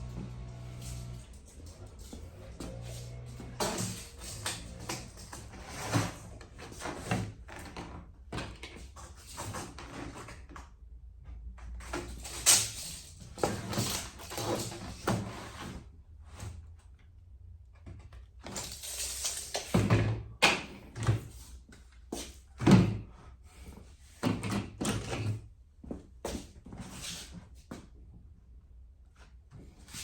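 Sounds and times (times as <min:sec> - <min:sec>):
scraping on metal door: 0:00.0 - 0:07.4.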